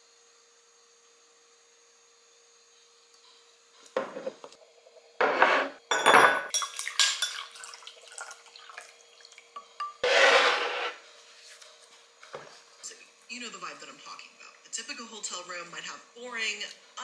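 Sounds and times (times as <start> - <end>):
ice clinking against glass: 5.9 - 7.6
coffee pouring into a glass mug: 6.5 - 10.0.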